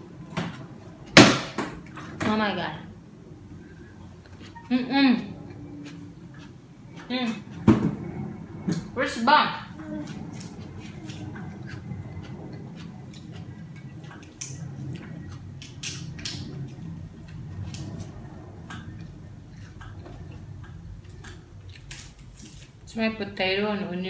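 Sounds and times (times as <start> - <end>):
chewing fried food: 5.4 - 7.6, 10.2 - 15.8.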